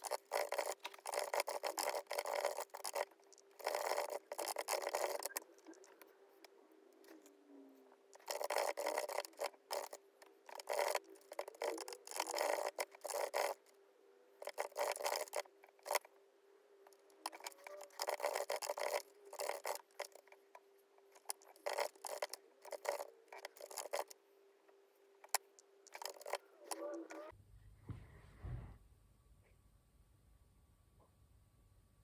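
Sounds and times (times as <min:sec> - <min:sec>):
rustling and scraping at a desk: 0:00.0 - 0:13.8, 0:14.4 - 0:16.2, 0:16.9 - 0:24.2, 0:25.0 - 0:27.3
faint steady hum: 0:00.0 - 0:32.0.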